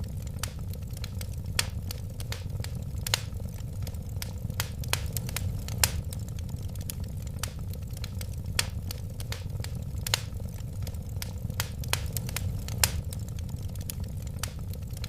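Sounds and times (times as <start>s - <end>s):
low rumble of flames: 0.0s - 15.0s
wood fire crackling and popping: 0.0s - 15.0s.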